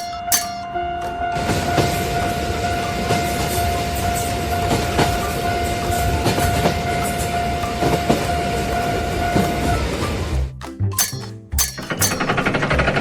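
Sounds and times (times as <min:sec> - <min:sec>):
railroad crossing bell ringing: 0:00.0 - 0:10.0, 0:11.0 - 0:12.4
train passing: 0:01.1 - 0:10.3.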